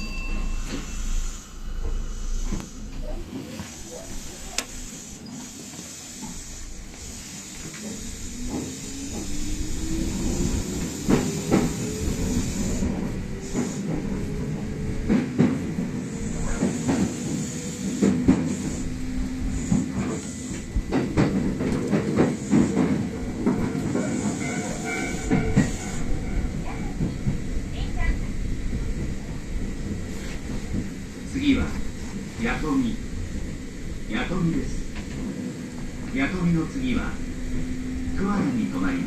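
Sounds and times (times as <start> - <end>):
train rumble: 0.0 - 39.0
electric train motor whine: 0.7 - 16.4, 17.0 - 26.4
wheels clicking over rail joints: 2.5 - 5.1, 5.8 - 27.6.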